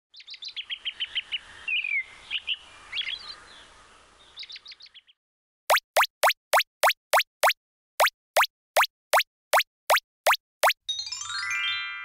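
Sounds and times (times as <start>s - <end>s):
songbird chirping: 0.1s - 5.2s
pop with falling pitch: 5.7s - 10.8s.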